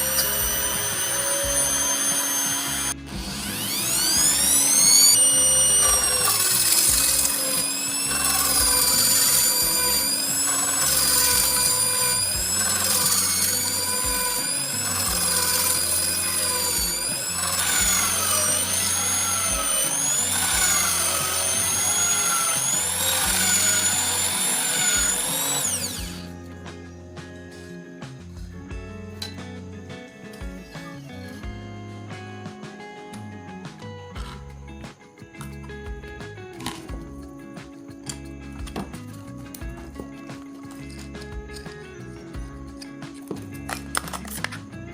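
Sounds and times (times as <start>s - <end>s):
power tool motor whining: 0.0s - 26.6s, 36.6s - 44.9s
background music: 0.0s - 44.9s.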